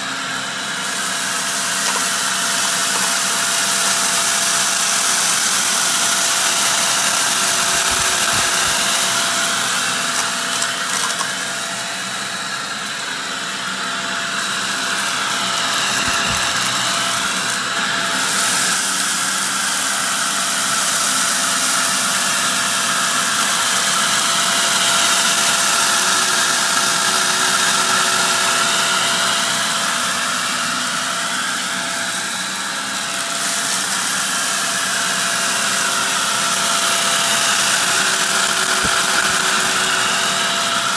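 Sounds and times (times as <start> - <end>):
vacuum cleaner running: 0.0 - 40.9
dirt being sucked up: 0.8 - 11.4, 14.4 - 19.1.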